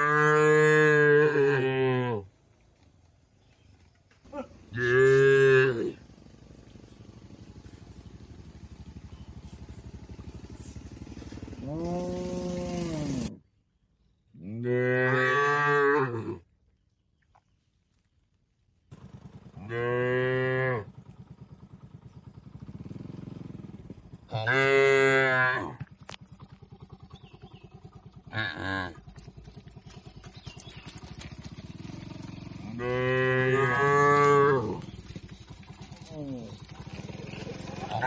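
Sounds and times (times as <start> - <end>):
cattle mooing: 0.0 - 2.3, 4.4 - 6.0, 11.6 - 13.3, 14.5 - 16.4, 19.6 - 20.9, 24.3 - 25.9, 32.6 - 34.9, 37.6 - 38.0
low steady hum: 0.0 - 14.9.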